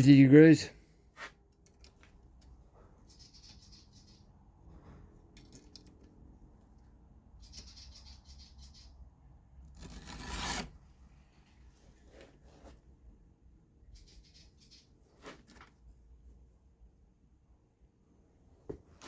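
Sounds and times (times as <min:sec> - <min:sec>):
file rasping on chainsaw chain: 0:09.8 - 0:10.7
rushing scrape: 0:09.8 - 0:10.8.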